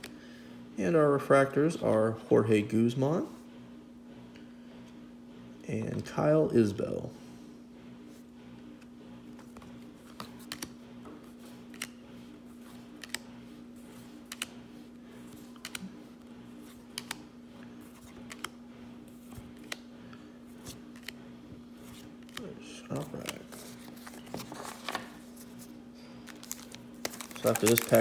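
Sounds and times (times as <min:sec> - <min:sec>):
low electrical hum: 0:00.0 - 0:28.0
cards clicking off a stack: 0:10.1 - 0:10.8, 0:11.7 - 0:12.0, 0:13.0 - 0:13.3, 0:14.2 - 0:14.6, 0:15.3 - 0:15.9.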